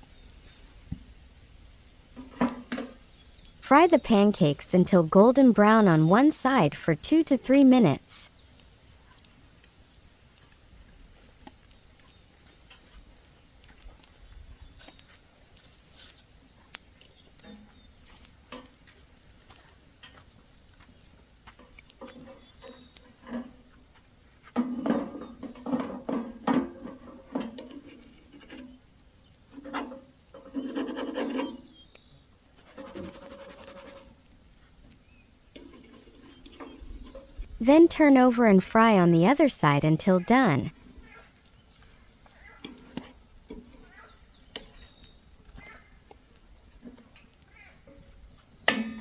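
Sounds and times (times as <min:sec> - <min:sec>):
faint crackling and ticking: 0:00.0 - 0:31.2, 0:31.9 - 0:49.0.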